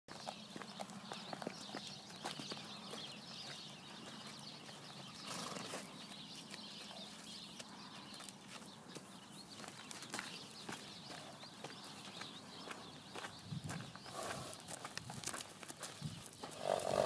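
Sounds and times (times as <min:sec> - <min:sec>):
hoof clicks: 0:00.1 - 0:17.0
pony snorting: 0:16.5 - 0:17.0.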